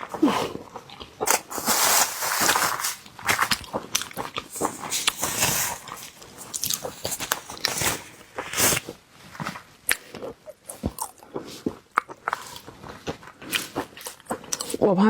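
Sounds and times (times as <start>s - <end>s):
wet chewing with crunches: 0.0s - 14.8s.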